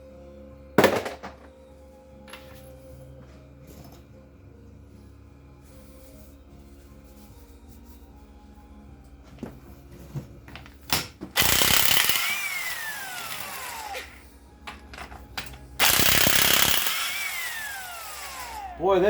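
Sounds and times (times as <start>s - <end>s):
air impact wrench hammering: 10.9s - 19.0s
air motor whine winding down: 15.8s - 18.9s.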